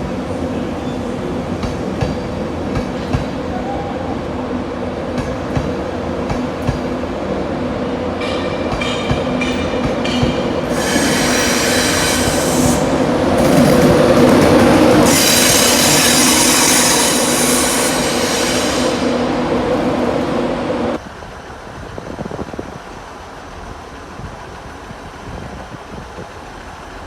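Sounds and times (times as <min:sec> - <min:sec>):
train moving: 0:00.0 - 0:27.0
high-pitched wheel squeal: 0:10.7 - 0:12.9.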